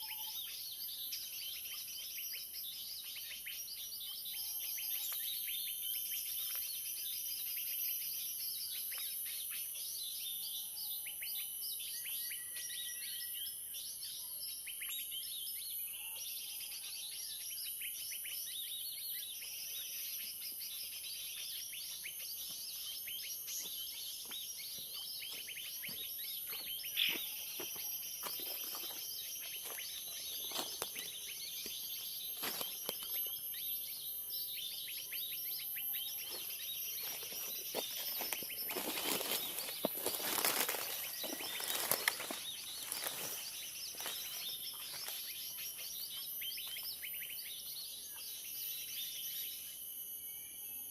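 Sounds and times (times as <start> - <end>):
many small birds chirping: 0.0 - 50.9.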